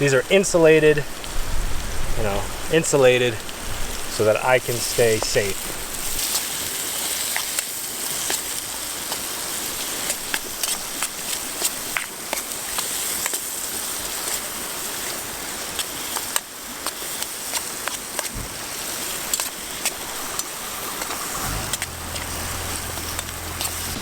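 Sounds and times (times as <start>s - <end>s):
vegetables sizzling in a pan: 1.2s - 24.0s
low steady hum: 21.2s - 24.0s.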